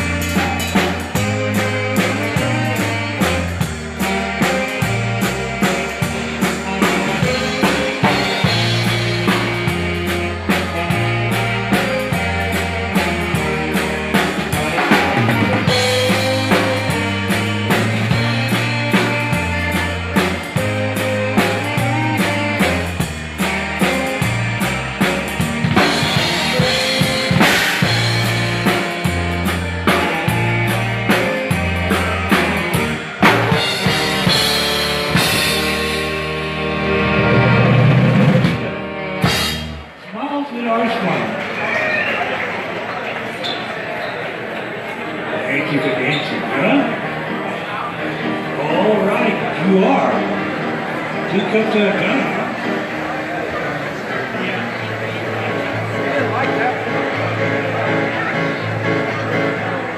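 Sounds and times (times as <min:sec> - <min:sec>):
drum kit beat: 0:00.0 - 0:40.0
dance band playing: 0:00.0 - 0:43.0, 0:45.0 - 0:59.9.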